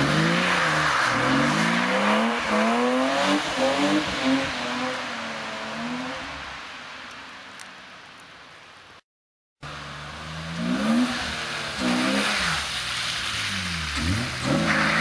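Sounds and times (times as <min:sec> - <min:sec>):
car engine revving: 0:00.0 - 0:06.2, 0:09.7 - 0:15.0.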